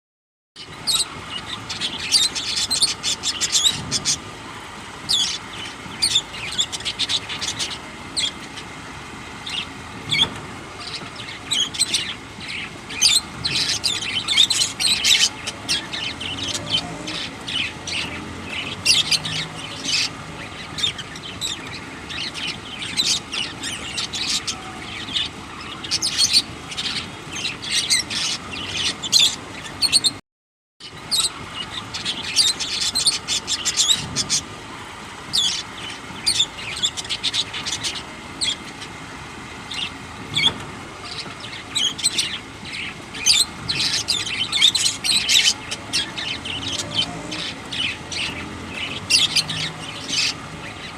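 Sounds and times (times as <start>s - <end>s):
small birds chirping and chattering: 0.6s - 30.2s, 30.8s - 50.9s.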